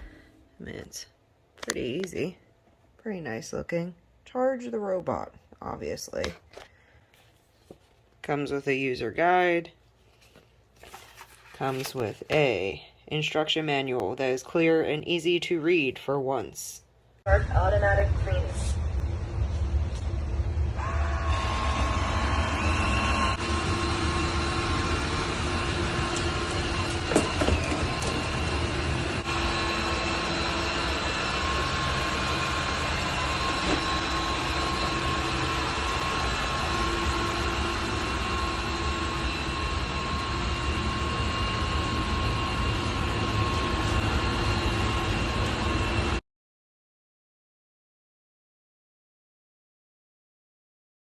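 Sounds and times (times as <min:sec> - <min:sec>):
robot vacuum cleaner whirring: 0:20.8 - 0:46.2.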